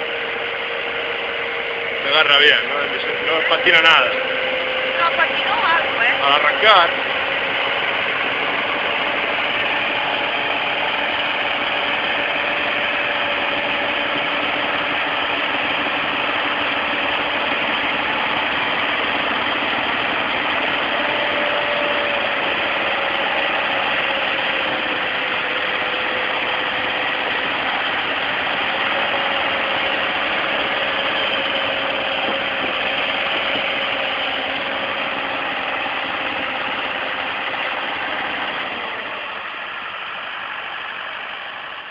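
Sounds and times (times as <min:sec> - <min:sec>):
steady whine: 0:00.0 - 0:41.9
tractor engine running: 0:00.0 - 0:41.9.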